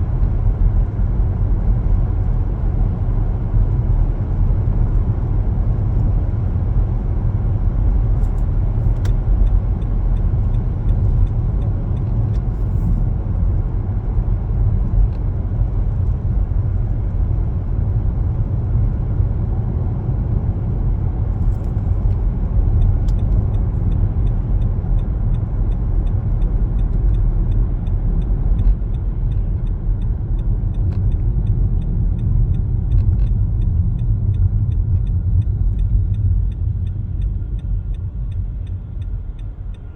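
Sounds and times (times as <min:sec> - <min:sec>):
car road and engine rumble: 0:00.0 - 0:39.9
turn signal clicking: 0:08.2 - 0:13.0, 0:21.3 - 0:39.9.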